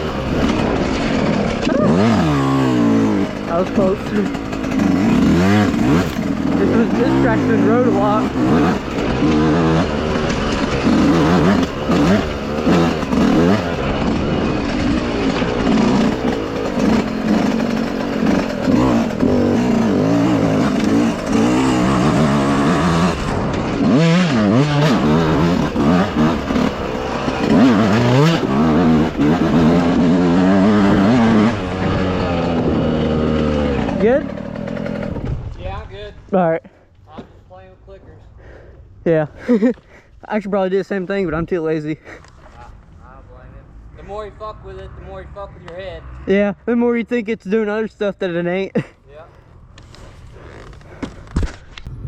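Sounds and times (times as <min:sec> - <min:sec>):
dirt bike engine revving: 0:00.0 - 0:35.6, 0:48.4 - 0:51.3.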